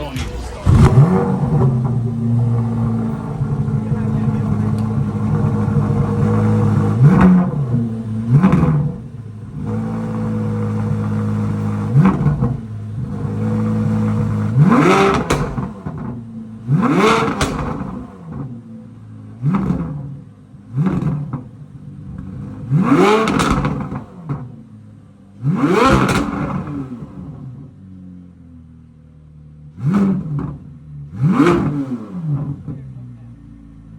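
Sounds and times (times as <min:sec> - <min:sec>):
car engine idling: 0:00.0 - 0:33.9
car engine revving: 0:00.0 - 0:33.9.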